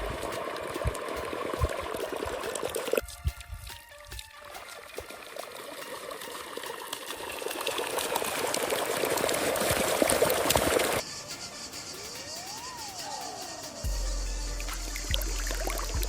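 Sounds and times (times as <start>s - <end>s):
water pouring and splashing: 0.0s - 11.0s.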